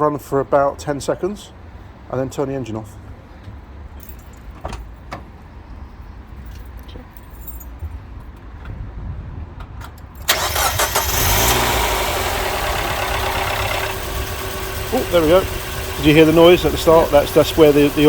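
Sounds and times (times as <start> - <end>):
car engine starting and idling: 10.2 - 18.0
noisy engine tappets: 10.3 - 18.0.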